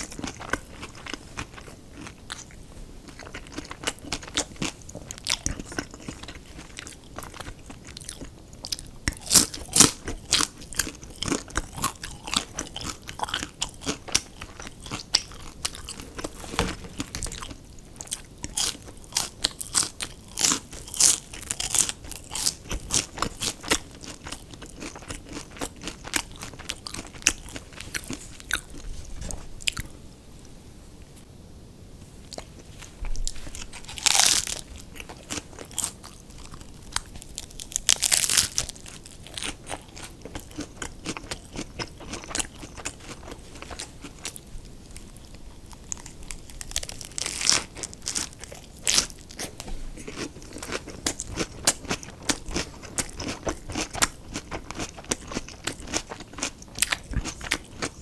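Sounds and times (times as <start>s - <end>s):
crunching and chewing food: 0.0s - 30.0s, 32.2s - 58.0s.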